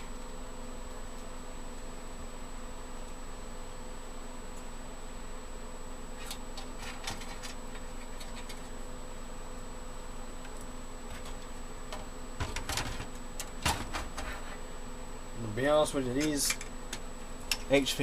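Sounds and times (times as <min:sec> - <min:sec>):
steady electrical hum: 0:00.0 - 0:18.0
faint high whine: 0:13.4 - 0:18.0.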